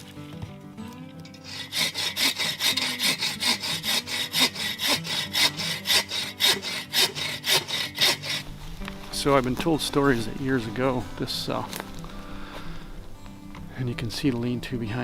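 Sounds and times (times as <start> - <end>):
hand saw cutting wood: 1.3 - 8.6.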